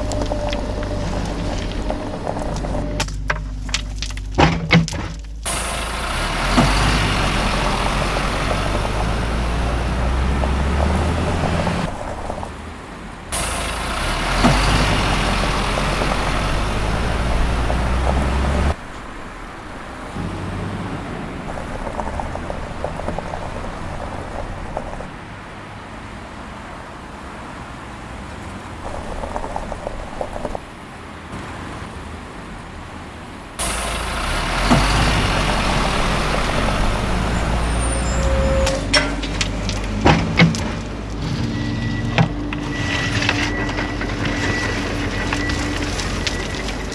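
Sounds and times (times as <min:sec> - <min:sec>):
toy vehicle motors humming: 0:00.0 - 0:10.9
clatter: 0:00.0 - 0:12.6, 0:33.6 - 0:46.9.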